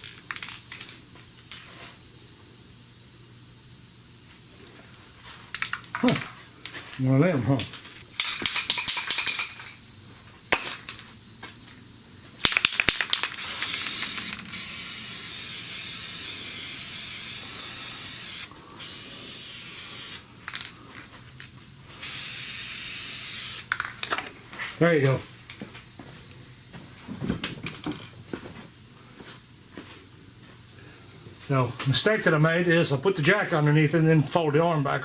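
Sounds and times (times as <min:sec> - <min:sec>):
short clattering bursts: 0:12.5 - 0:14.7
aerosol spray can hissing: 0:13.1 - 0:20.7, 0:21.9 - 0:23.8.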